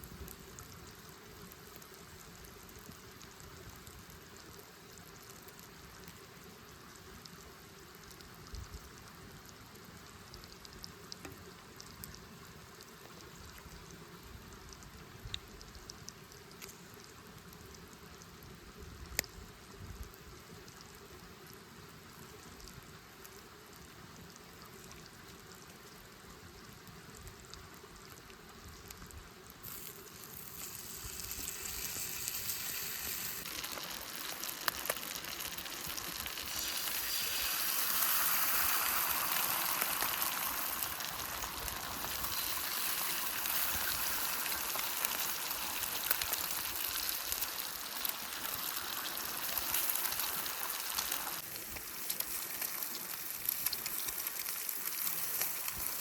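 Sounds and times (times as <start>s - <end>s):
food sizzling in a pan: 29.6s - 56.0s.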